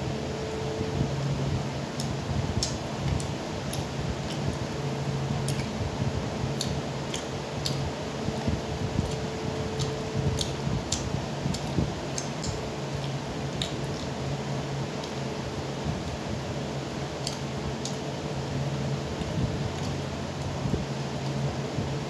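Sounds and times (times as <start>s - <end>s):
steady low hum: 0.0s - 22.0s
lip and tongue clicks: 9.8s - 14.1s.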